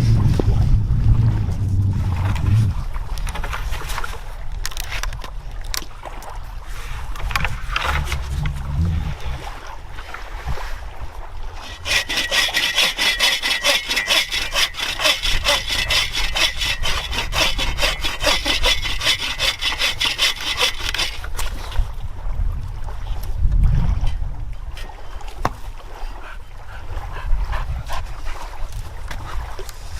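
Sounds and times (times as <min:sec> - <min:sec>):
hand saw cutting wood: 0:07.4 - 0:09.2, 0:11.6 - 0:21.7.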